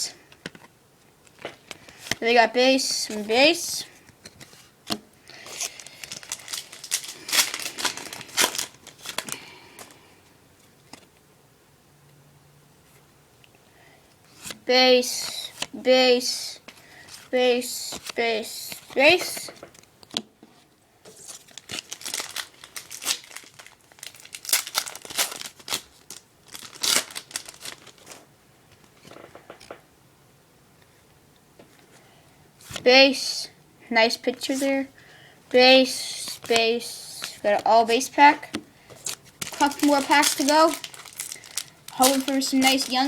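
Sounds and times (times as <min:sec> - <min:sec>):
foil wrapper crinkling and tearing: 0:05.3 - 0:10.0, 0:21.2 - 0:28.3, 0:38.9 - 0:43.0.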